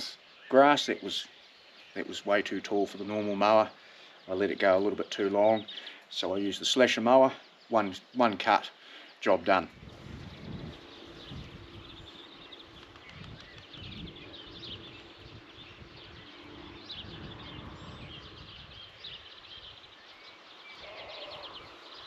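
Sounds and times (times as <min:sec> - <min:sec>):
small birds chirping: 0:00.0 - 0:22.0
wind rumble on microphone: 0:09.7 - 0:20.0.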